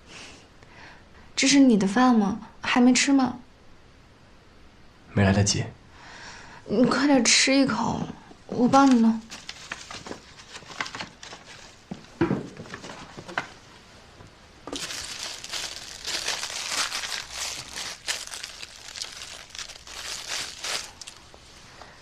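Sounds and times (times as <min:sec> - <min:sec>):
packaging crinkling: 0:08.7 - 0:11.8, 0:14.7 - 0:21.4.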